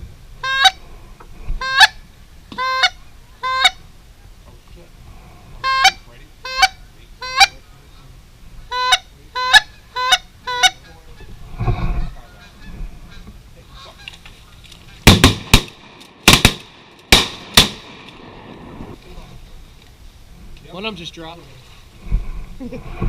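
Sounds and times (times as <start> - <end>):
geese honking: 0.4 - 0.8, 1.6 - 3.8, 5.6 - 7.6, 8.7 - 15.1
shotgun shots: 15.0 - 18.4.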